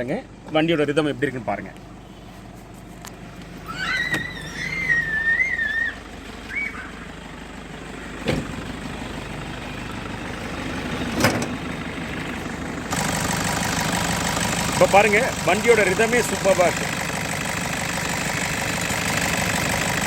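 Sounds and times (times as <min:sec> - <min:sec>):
car engine idling: 0:00.0 - 0:20.0
high wavering squeal: 0:03.6 - 0:07.0.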